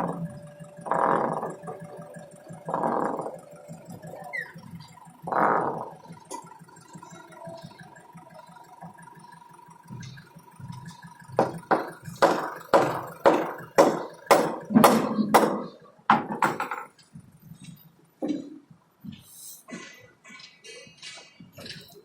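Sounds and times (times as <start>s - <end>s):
sharp knocks: 11.4s - 17.0s.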